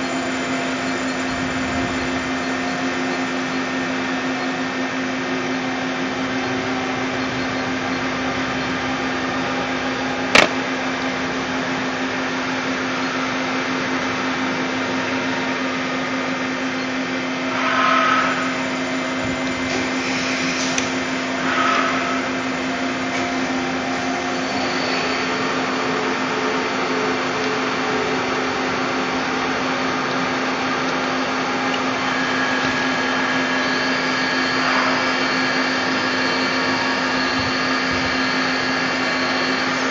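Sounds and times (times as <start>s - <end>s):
lathe machine humming: 0.0s - 39.9s
sharp click: 10.4s - 10.6s.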